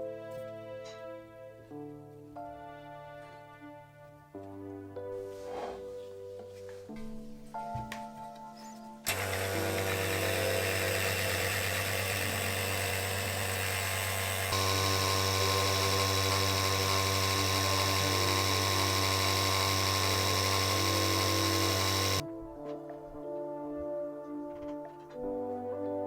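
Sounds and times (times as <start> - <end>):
electric motor humming: 9.1 - 22.2.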